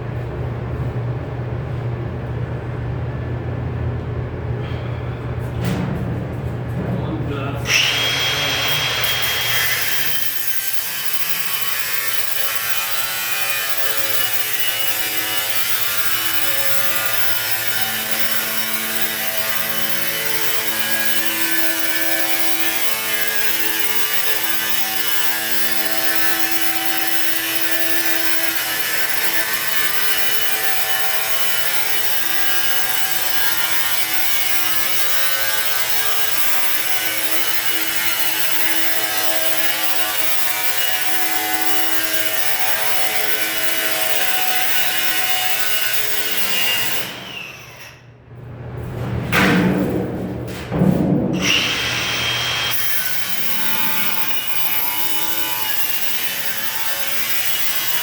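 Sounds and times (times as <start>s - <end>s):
rasping sawing-like noise: 7.7s - 47.8s, 51.4s - 58.0s.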